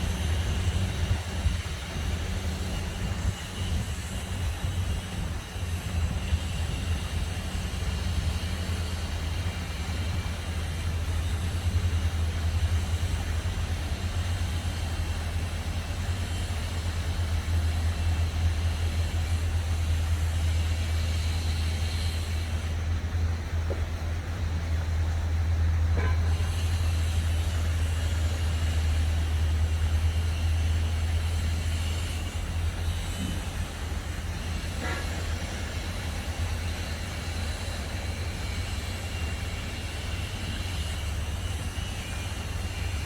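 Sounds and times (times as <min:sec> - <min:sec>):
construction works: 0:00.0 - 0:43.0
distant traffic rumble: 0:00.0 - 0:43.0.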